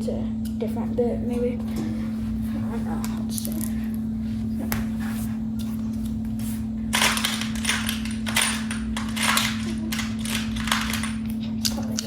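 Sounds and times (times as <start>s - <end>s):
steady low hum: 0.0s - 12.0s
screwdriver bits clicking and rattling: 6.9s - 12.0s.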